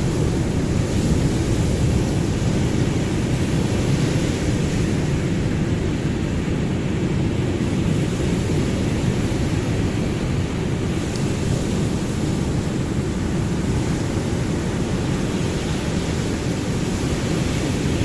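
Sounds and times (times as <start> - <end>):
ocean surf rushing: 0.0 - 18.0.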